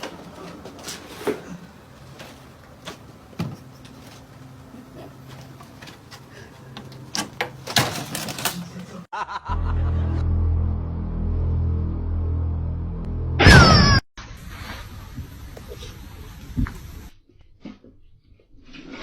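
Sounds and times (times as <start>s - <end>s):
knocks and clatter: 5.3s - 9.0s
loud bass-heavy music: 9.5s - 13.4s.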